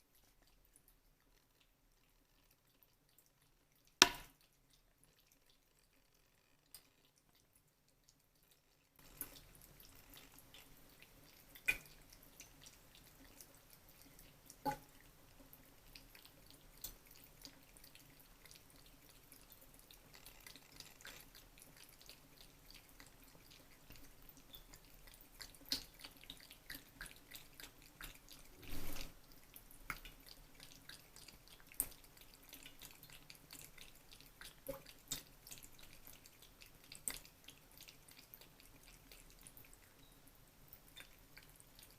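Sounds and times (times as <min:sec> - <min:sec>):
cat lapping water: 0:00.0 - 0:41.9
water drips: 0:00.0 - 0:41.9.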